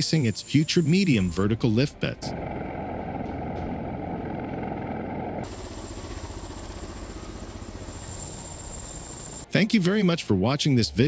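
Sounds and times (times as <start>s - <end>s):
high whine: 2.1s - 9.5s
aircraft engine rumble: 2.2s - 9.5s.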